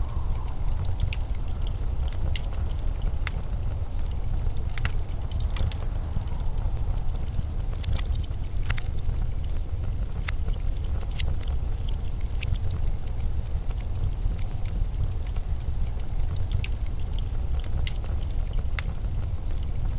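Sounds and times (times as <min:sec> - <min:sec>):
blizzard wind: 0:00.0 - 0:19.9
sharp clicks: 0:00.2 - 0:12.6.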